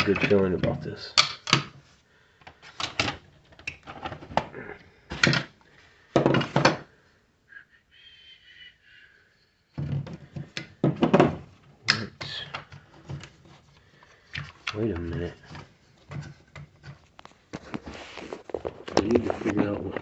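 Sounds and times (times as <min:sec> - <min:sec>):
objects knocking as set down: 0:05.1 - 0:06.9, 0:09.8 - 0:11.5.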